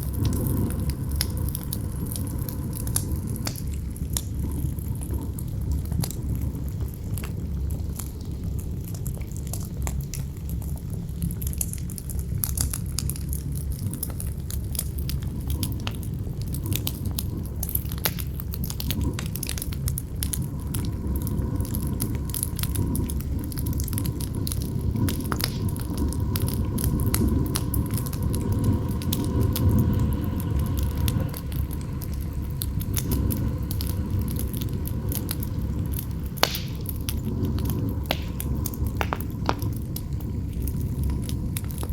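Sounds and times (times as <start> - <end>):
campfire crackling and popping: 0.0 - 41.9
gusting wind rumble: 15.2 - 41.9
howling wind whistle: 20.4 - 41.9.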